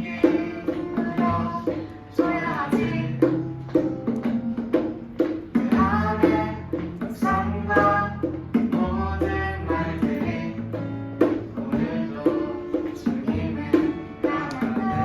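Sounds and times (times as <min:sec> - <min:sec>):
bass notes: 0:00.0 - 0:15.0
percussion beat: 0:00.0 - 0:15.0.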